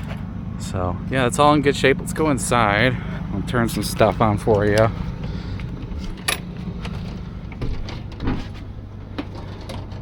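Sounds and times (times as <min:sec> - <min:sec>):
low engine-like rumble: 0:00.0 - 0:10.0
door clicks and knocks: 0:07.6 - 0:10.0.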